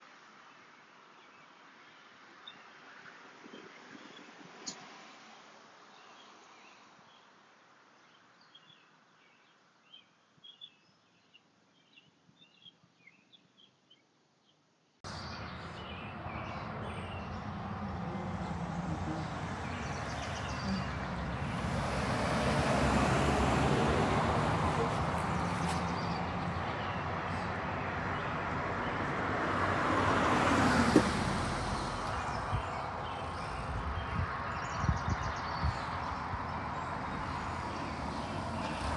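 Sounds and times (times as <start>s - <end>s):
small birds chirping: 8.0s - 38.9s
low rumbling noise: 15.1s - 38.4s
background traffic: 15.1s - 38.9s
car passing by: 15.1s - 38.9s.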